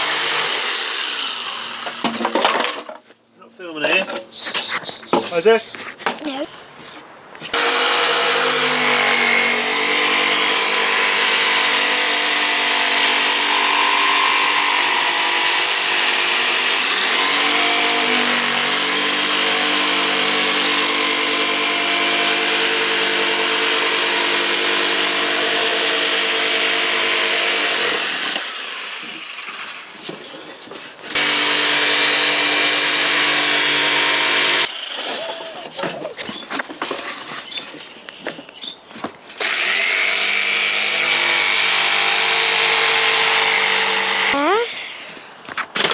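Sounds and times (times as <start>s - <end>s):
electric power tool cutting wood: 0.0s - 2.2s, 7.5s - 30.1s, 31.0s - 35.5s, 39.3s - 45.0s.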